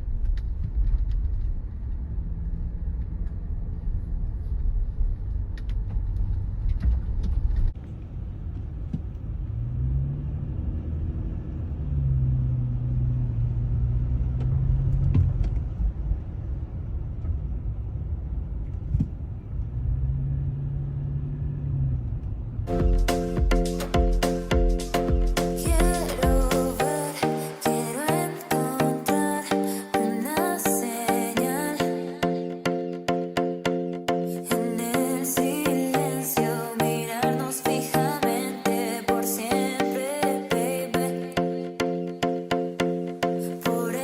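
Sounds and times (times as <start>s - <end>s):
road rumble: 7.7s - 22.7s.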